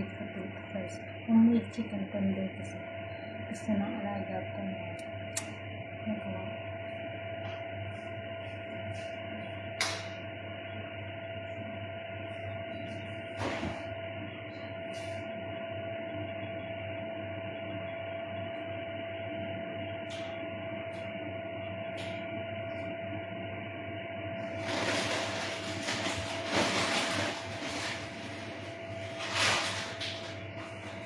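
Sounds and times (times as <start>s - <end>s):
electrical hum with whining tone: 0.0s - 31.0s.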